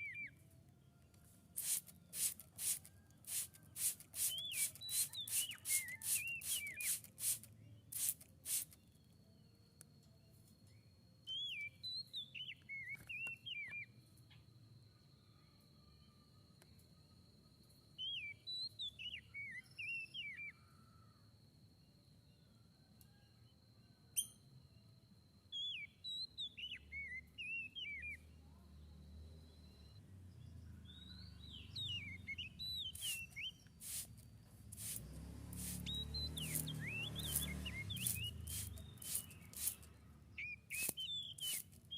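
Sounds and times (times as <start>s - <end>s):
bird whistling song: 0.0s - 0.4s, 1.6s - 8.7s, 11.2s - 14.0s, 18.0s - 20.7s, 25.5s - 28.2s, 30.9s - 34.2s, 34.8s - 41.9s
short noisy bursts: 1.6s - 8.8s, 32.9s - 39.9s.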